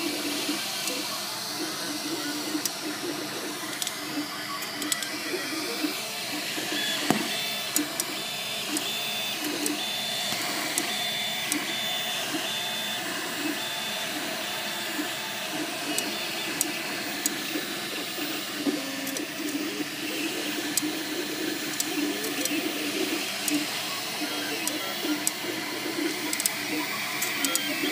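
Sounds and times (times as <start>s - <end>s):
high-pitched pulsing tone: 0.0s - 27.9s
printer stepper motors whirring: 0.0s - 27.9s
sharp clicks: 26.0s - 26.6s.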